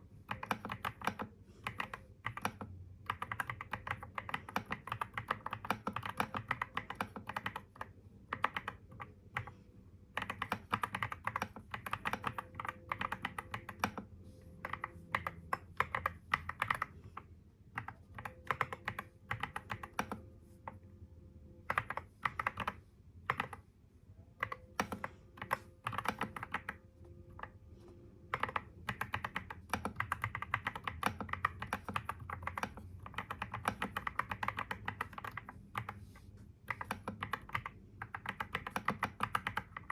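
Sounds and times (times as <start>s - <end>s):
computer keyboard typing: 0.0s - 20.8s, 21.6s - 23.7s, 24.3s - 27.6s, 28.2s - 39.9s
faint steady hum: 0.0s - 39.9s.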